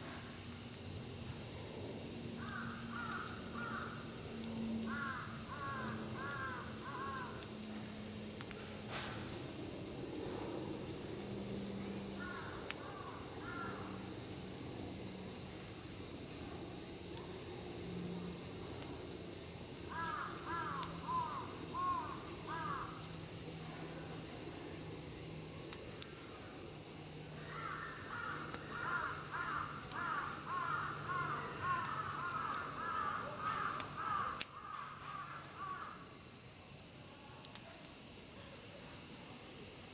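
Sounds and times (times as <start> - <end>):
high-pitched insect drone: 0.0 - 16.0, 17.5 - 25.6, 26.2 - 36.6
crows cawing: 2.4 - 3.9, 4.9 - 7.3, 12.2 - 13.9, 19.9 - 23.0, 27.4 - 36.0.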